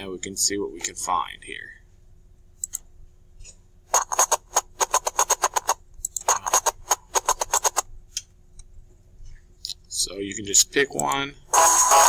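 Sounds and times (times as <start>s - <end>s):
faint hum: 0.0s - 12.0s
rapid clicking: 3.9s - 7.9s.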